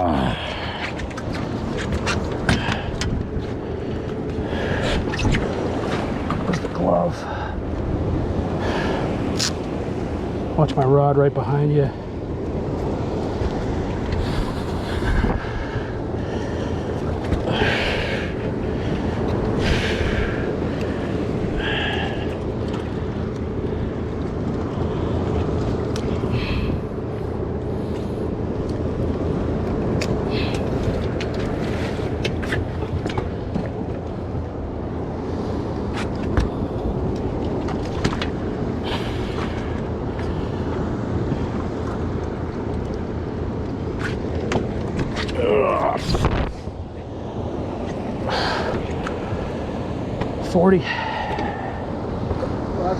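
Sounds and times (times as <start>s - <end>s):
boat engine rumble: 0.0s - 52.9s
water noise: 0.0s - 52.9s
wind noise: 12.6s - 22.3s, 44.0s - 49.7s.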